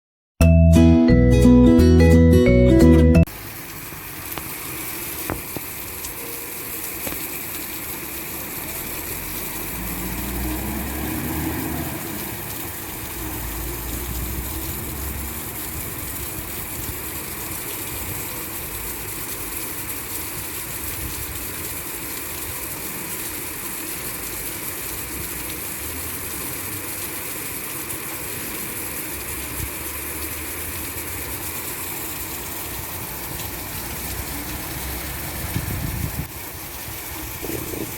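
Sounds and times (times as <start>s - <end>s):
heavy rain: 3.3s - 37.9s
traffic rumble: 8.1s - 17.5s, 32.4s - 37.9s
engine rising in pitch: 9.1s - 15.6s.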